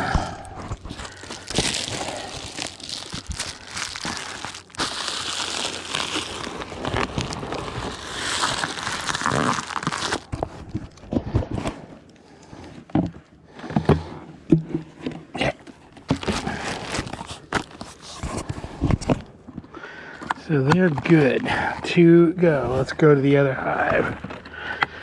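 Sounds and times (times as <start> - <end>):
crinkling and rustling: 0.0 - 25.0.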